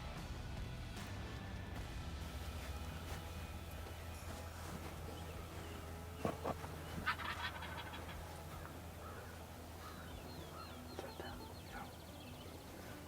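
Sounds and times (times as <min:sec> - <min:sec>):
sharp turkey notes: 0:05.0 - 0:12.9
turkey gobbling: 0:06.2 - 0:12.0.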